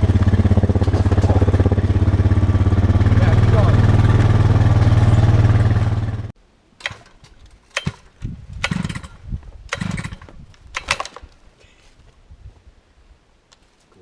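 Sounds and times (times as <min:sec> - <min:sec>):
chainsaw engine running: 0:00.0 - 0:06.3, 0:08.6 - 0:11.0
knocks and clatters: 0:00.6 - 0:01.8.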